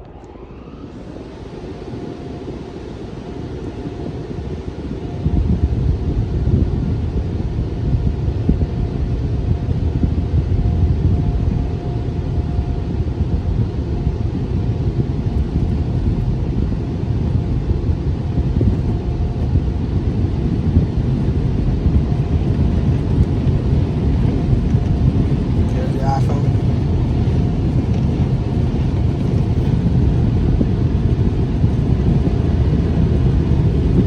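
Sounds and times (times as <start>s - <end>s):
faint steady hum: 0.0s - 34.0s
air dryer blowers rushing: 13.5s - 34.0s.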